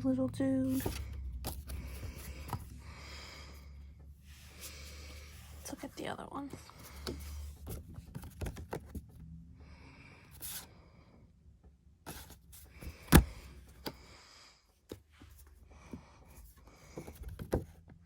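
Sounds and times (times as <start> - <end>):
paper and card rustling: 0.6 - 2.7.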